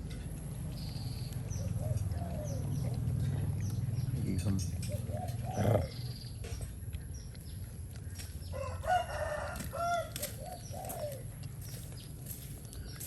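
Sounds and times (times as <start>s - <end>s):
rooster crowing: 8.5s - 10.4s.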